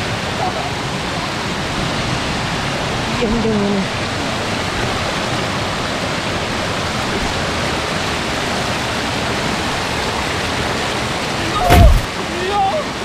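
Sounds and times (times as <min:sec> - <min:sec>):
waterfall rushing over rocks: 0:00.0 - 0:13.0.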